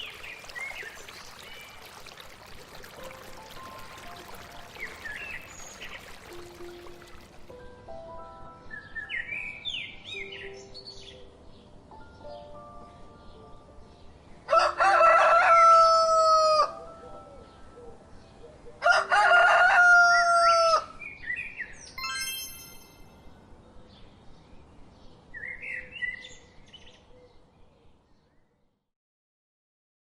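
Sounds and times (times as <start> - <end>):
rooster crowing: 14.5 - 16.7, 18.8 - 20.9.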